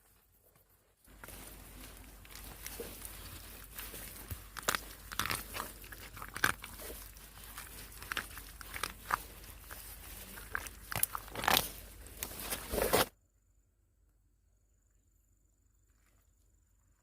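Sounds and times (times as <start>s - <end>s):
crunching and crackling: 0.0s - 13.1s.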